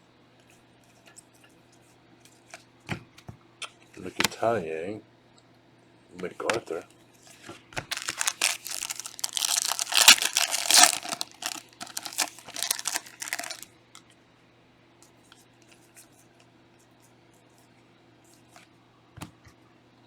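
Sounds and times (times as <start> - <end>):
plastic wrapper tearing and crinkling: 7.9 - 13.6.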